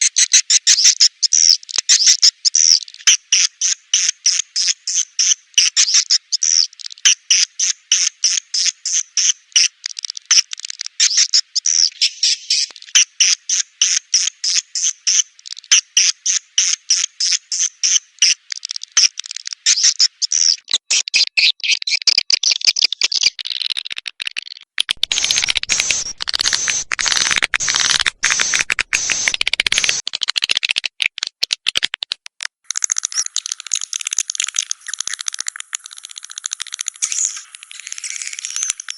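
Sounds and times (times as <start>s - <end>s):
swiftlet chirps and twittering: 25.0s - 30.0s, 32.7s - 38.9s.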